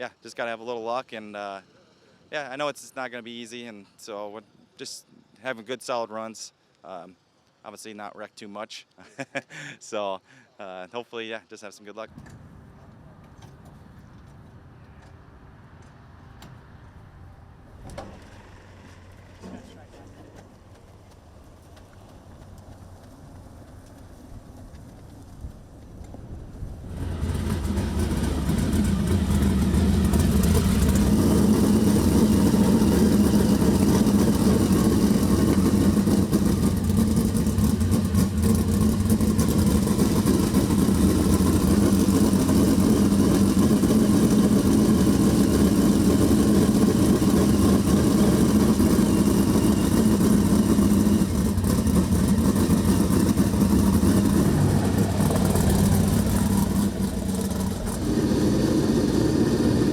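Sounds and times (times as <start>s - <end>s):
race car engines running hard: 26.2s - 59.9s.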